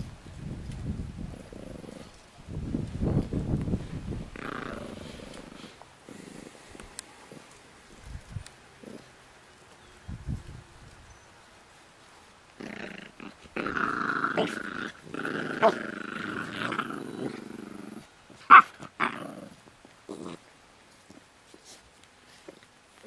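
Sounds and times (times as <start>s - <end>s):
puppies growling: 1.2s - 2.2s, 4.3s - 7.9s, 8.7s - 9.2s, 12.6s - 21.3s.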